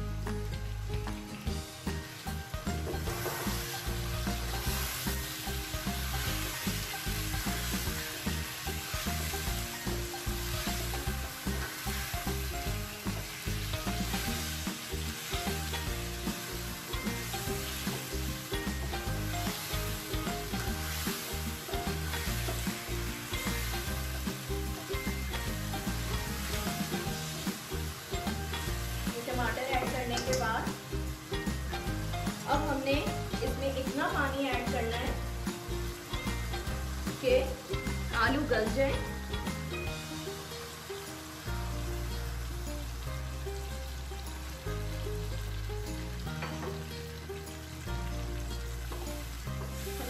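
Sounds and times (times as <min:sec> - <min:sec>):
food sizzling in hot oil: 0:00.0 - 0:50.0
spatula stirring in wok: 0:02.0 - 0:30.9.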